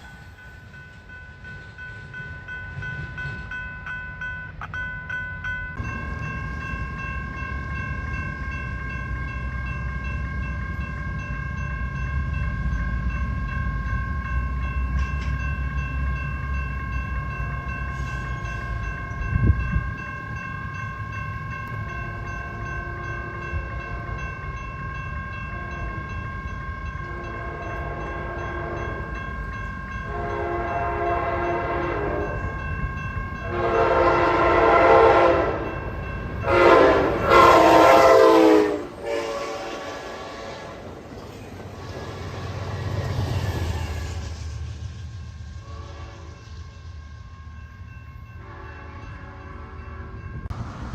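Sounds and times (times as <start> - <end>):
train rumbling: 0.0 - 50.9
locomotive horn blasts: 27.1 - 29.2, 30.0 - 32.6, 33.4 - 35.8, 36.4 - 40.8, 45.6 - 46.5, 48.4 - 50.4
steady high ringing: 42.7 - 50.5.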